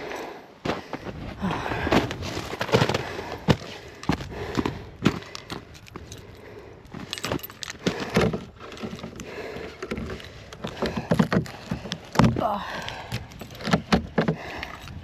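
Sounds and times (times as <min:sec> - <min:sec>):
short clinks and knocks: 0:05.5 - 0:09.2.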